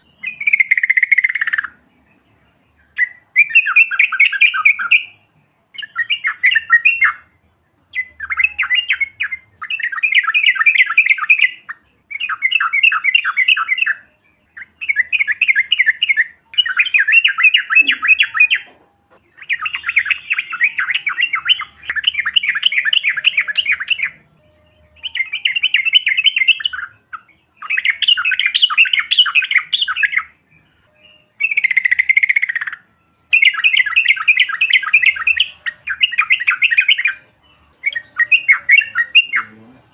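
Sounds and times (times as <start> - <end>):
bulbul song in chattering phrases: 17.1 - 24.2.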